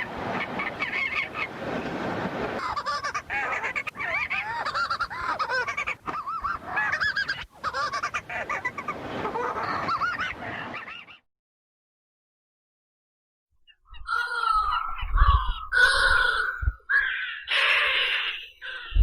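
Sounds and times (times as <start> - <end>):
seabirds honking calls: 0.0 - 11.2, 15.7 - 19.0.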